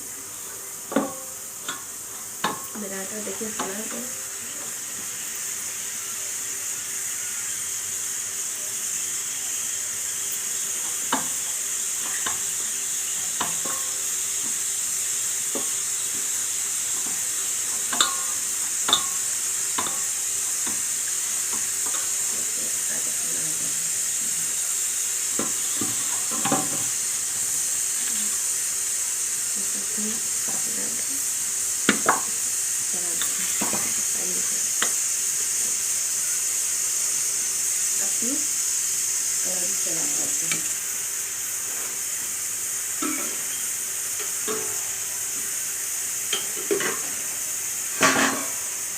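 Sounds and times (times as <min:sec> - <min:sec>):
food sizzling in a pan: 0:00.0 - 0:48.9
utensils knocking cookware: 0:00.9 - 0:02.9, 0:10.8 - 0:12.5, 0:13.2 - 0:14.6, 0:15.5 - 0:20.9, 0:21.5 - 0:22.4, 0:25.3 - 0:27.0, 0:31.9 - 0:32.3, 0:44.2 - 0:44.9.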